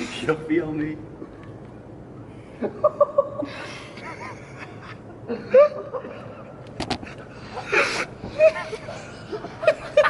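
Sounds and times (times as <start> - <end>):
young men laughing: 2.4 - 10.0.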